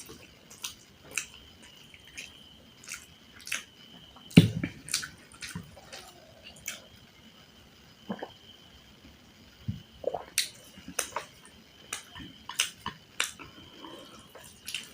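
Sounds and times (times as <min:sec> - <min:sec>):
wet chewing and mouth smacks: 0:00.0 - 0:01.4, 0:02.0 - 0:03.7, 0:04.4 - 0:06.8, 0:14.3 - 0:14.9.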